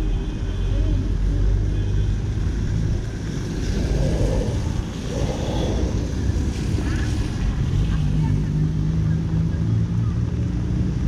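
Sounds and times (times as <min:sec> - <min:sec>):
vehicle engines running: 0:00.0 - 0:11.0.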